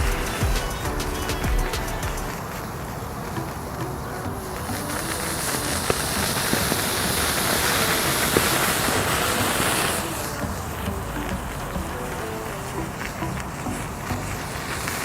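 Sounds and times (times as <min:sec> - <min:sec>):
background music: 0:00.0 - 0:02.6, 0:03.4 - 0:15.0
match heads flaring with hiss: 0:04.4 - 0:15.0.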